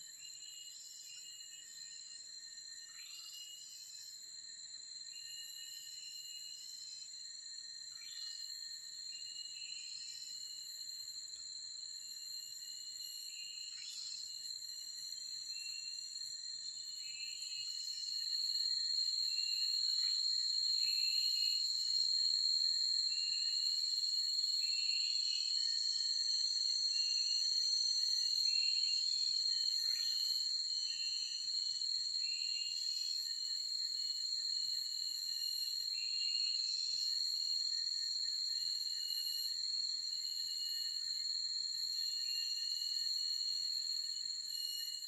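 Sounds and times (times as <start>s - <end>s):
high-pitched insect drone: 12.0s - 45.0s.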